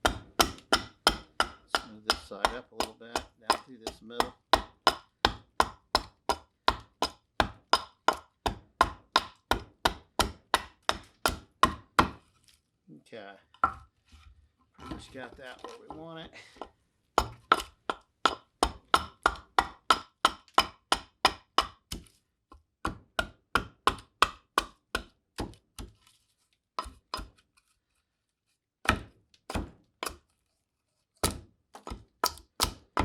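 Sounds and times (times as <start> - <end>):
hatchet chopping wood: 0.0 - 12.2, 16.6 - 26.0, 26.8 - 27.4, 28.8 - 30.2, 31.2 - 33.0.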